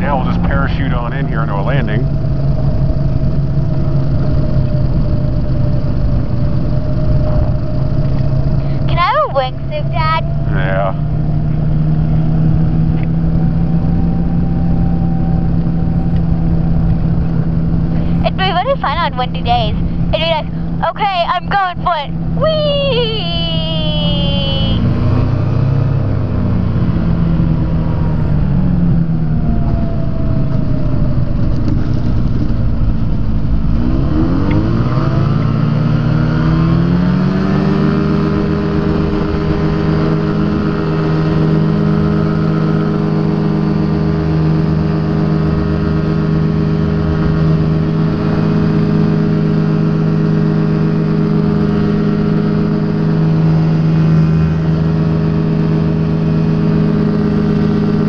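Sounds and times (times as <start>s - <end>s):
air noise: 0.0s - 25.1s
light aircraft engine: 0.0s - 58.0s.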